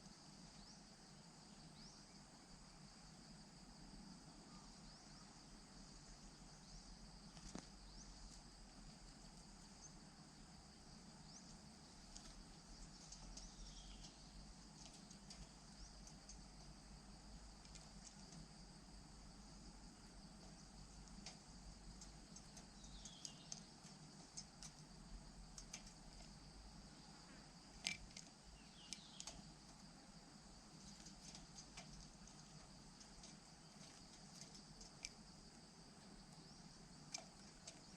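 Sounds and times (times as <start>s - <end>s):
faint insect chorus: 0.0s - 37.9s
sharp clicks: 21.0s - 24.9s, 25.5s - 26.0s, 27.8s - 29.5s, 37.1s - 37.9s.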